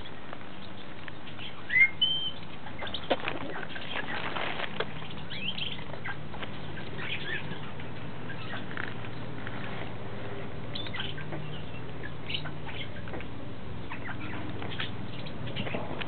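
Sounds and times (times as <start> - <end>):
parrot chirps: 1.4 - 4.1
wing flapping and scuffling: 2.4 - 11.6.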